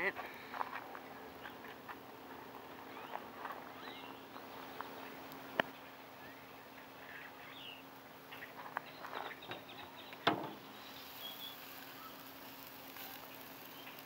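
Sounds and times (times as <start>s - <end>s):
faint steady hum: 0.0s - 14.0s
bird chirps: 2.9s - 12.2s, 13.7s - 14.0s
clicks and taps at grill: 8.4s - 10.6s.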